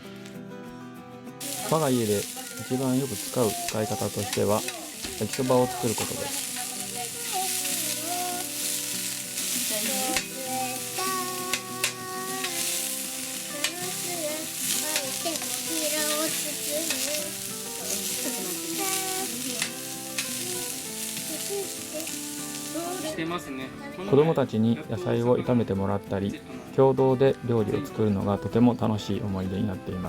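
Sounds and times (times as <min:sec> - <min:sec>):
noodles sizzling on griddle: 0:01.4 - 0:23.2.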